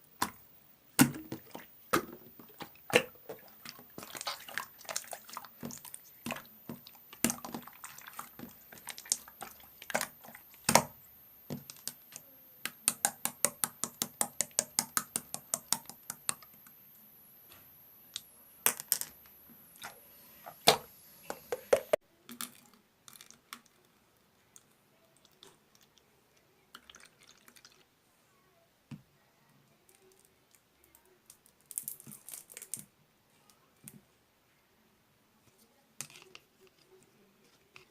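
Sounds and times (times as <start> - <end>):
slime clicking and popping: 11.6 - 16.6.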